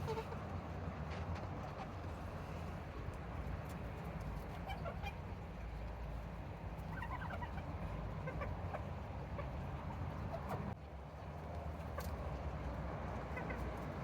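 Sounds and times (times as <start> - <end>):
chickens clucking softly: 0.0 - 0.5, 3.8 - 5.8, 6.6 - 14.0.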